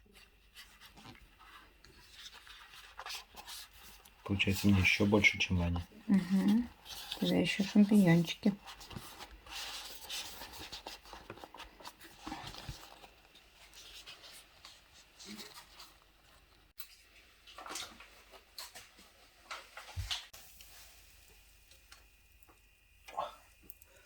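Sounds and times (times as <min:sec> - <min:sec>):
soft rustles: 0:00.1 - 0:05.4, 0:06.1 - 0:16.7.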